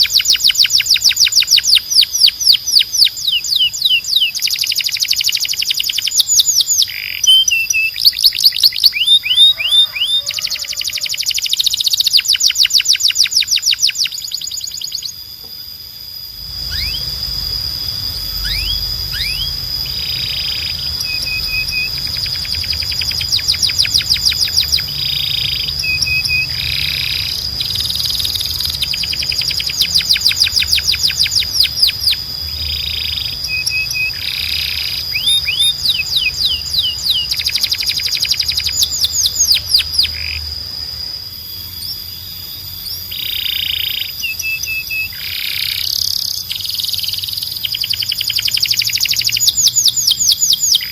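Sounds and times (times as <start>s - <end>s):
canary singing: 0.0s - 15.4s, 16.1s - 50.9s
steady high-pitched tone: 0.0s - 50.9s.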